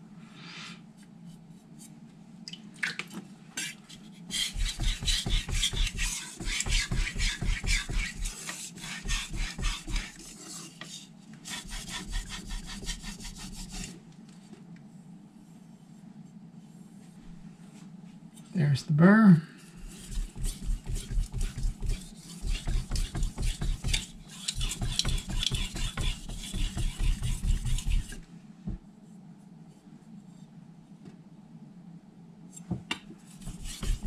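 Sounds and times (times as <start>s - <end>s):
knife scraping on whetstone: 20.0s - 28.2s, 33.4s - 34.0s.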